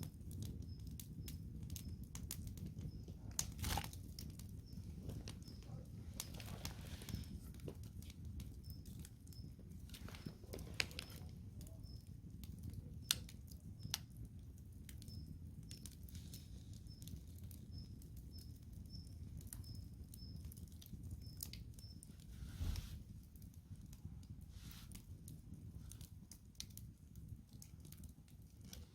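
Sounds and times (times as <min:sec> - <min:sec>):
campfire crackling and popping: 0:00.0 - 0:28.9
faint high chirp: 0:00.4 - 0:02.2, 0:02.8 - 0:03.4, 0:04.4 - 0:14.1, 0:15.0 - 0:22.8.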